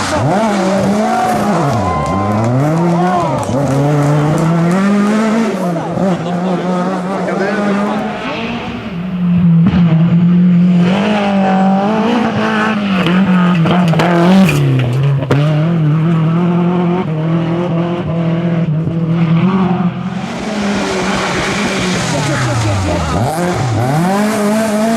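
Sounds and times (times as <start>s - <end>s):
rally car engine at high revs: 0.0s - 24.9s.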